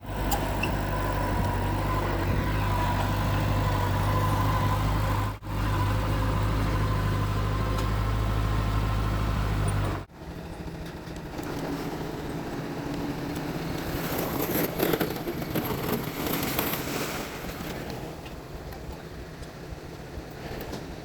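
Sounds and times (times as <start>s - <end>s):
heavy diesel engine running: 0.0s - 16.4s
thin engine whine: 0.0s - 18.2s.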